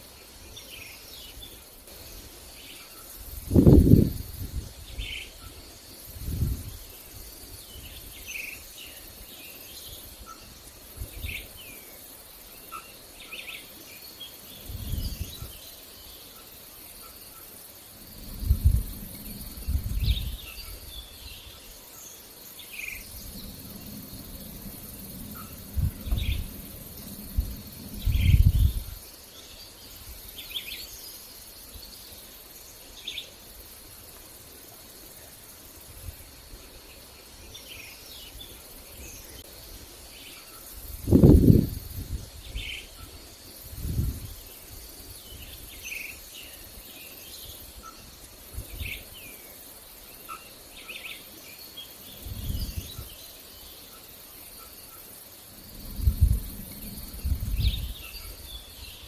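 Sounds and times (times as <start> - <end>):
insects trilling: 0.0 - 59.0
birds chirping: 12.6 - 33.3
low rumbles: 23.0 - 29.0.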